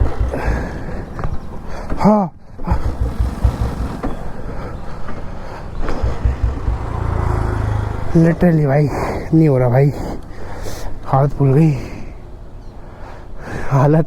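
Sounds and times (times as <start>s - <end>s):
motorcycle engine running unevenly: 0.0s - 9.2s.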